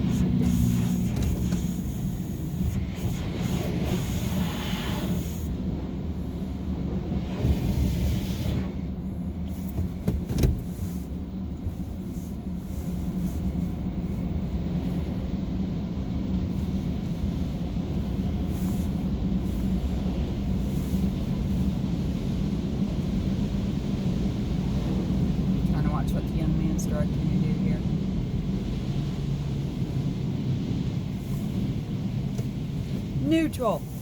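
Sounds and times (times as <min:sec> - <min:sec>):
car engine idling: 0:00.0 - 0:03.2, 0:09.0 - 0:21.9.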